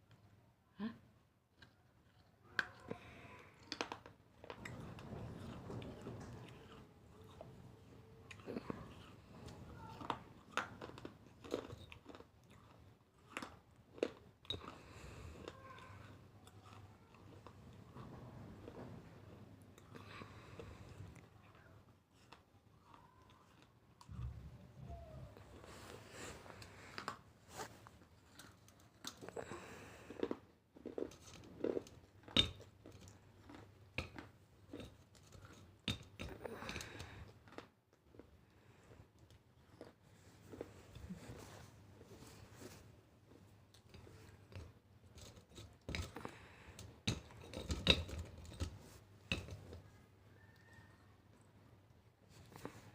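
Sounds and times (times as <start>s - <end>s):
crunchy food being chewed: 1.5s - 52.9s
chewing and mouth smacks: 8.2s - 14.8s.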